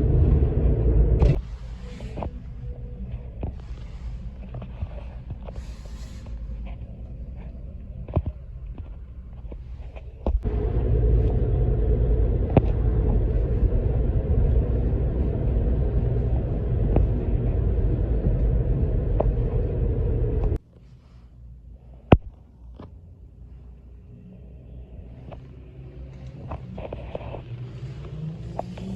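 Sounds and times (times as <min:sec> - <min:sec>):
truck engine rumble: 0:00.0 - 0:20.6
road noise: 0:00.0 - 0:28.9.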